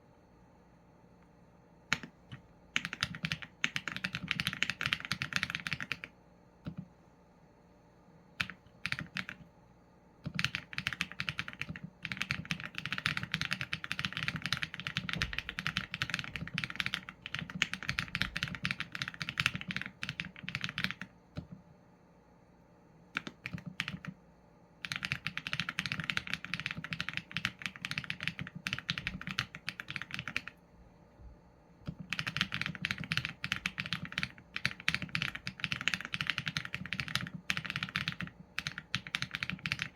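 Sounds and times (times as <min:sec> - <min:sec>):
mechanical keyboard typing: 0:01.9 - 0:06.9, 0:08.4 - 0:09.5, 0:10.2 - 0:21.6, 0:23.1 - 0:24.2, 0:24.8 - 0:30.6, 0:31.8 - 0:39.9.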